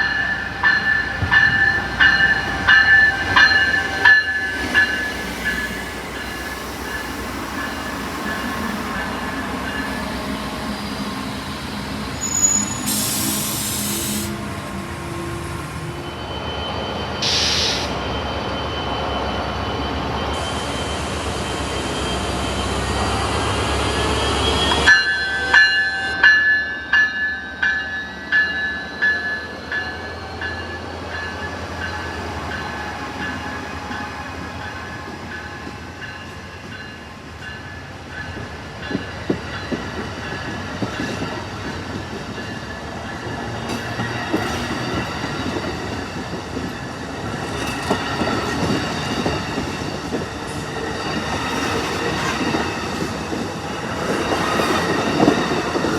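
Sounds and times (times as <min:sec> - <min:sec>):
rail noise: 0:00.0 - 0:55.9.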